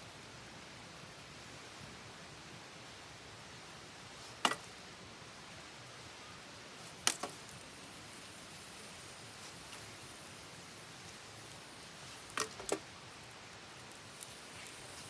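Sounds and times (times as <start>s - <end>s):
campfire hissing: 0.0s - 15.0s
fire crackling pops: 3.7s - 15.0s.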